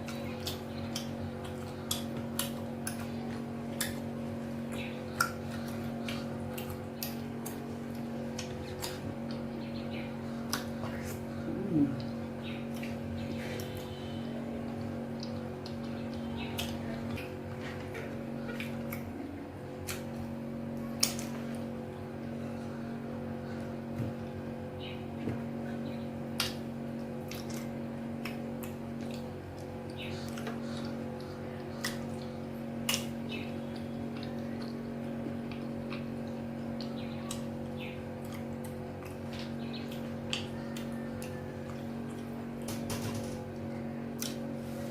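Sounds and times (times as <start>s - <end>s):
steady low hum: 0.0s - 44.9s
wet eating and chewing sounds: 0.0s - 44.9s.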